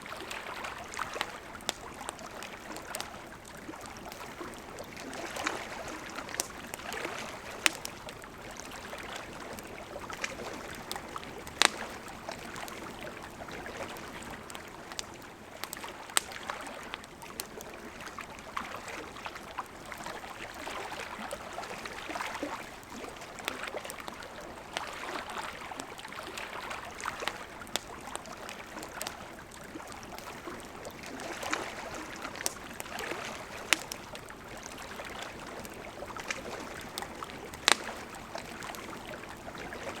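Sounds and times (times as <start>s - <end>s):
campfire crackling and popping: 0.0s - 40.0s
river flowing: 0.0s - 40.0s.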